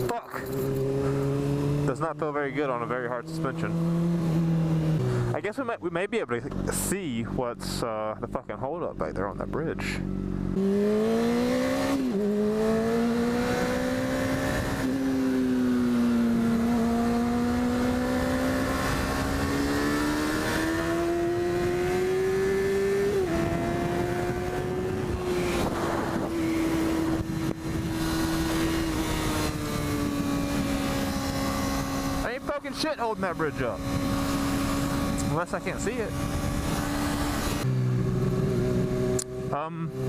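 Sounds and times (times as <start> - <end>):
motorcycle engine shifting gears: 0.0 - 5.4, 10.0 - 40.0
wind noise: 12.8 - 32.2, 33.7 - 39.2.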